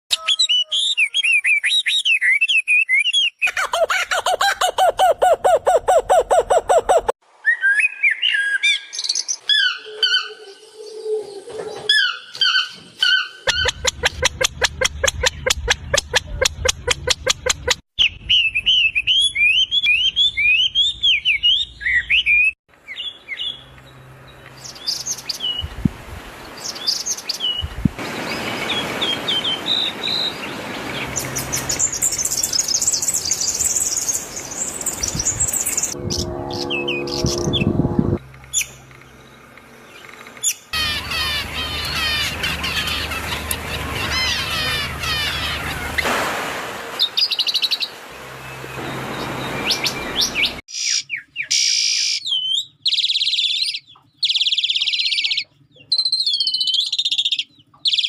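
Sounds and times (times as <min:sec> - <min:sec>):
parrots chirping and calling: 0:03.4 - 0:07.1, 0:40.4 - 0:46.0.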